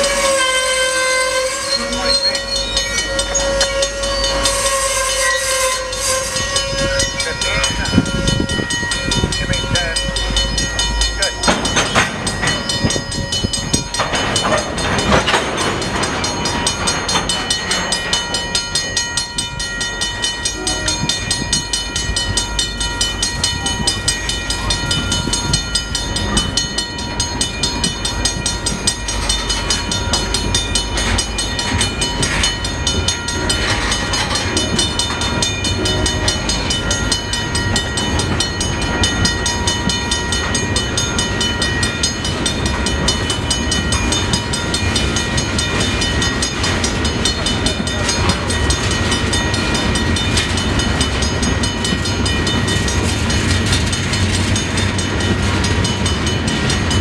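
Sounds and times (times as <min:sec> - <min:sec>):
crossing bell ringing: 0:00.0 - 0:57.0
freight train rolling past: 0:00.0 - 0:57.0
wheels clacking over rail joints: 0:00.0 - 0:57.0.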